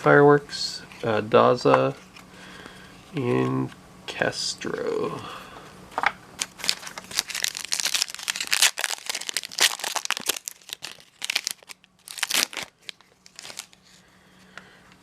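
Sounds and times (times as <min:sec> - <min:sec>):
plastic wrapper crinkling: 0:06.4 - 0:13.8
wrapper tearing open: 0:06.4 - 0:13.8.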